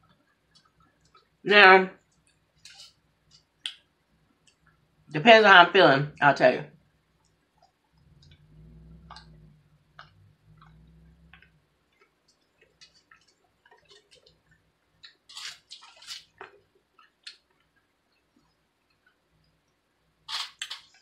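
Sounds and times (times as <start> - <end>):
low hum: 7.8 - 12.6
crunchy noodles being chewed: 9.0 - 19.2.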